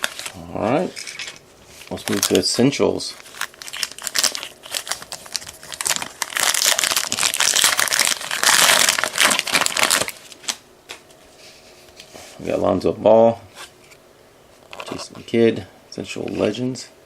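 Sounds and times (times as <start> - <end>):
card pack wrapper tearing: 0.0 - 2.5, 3.1 - 10.6.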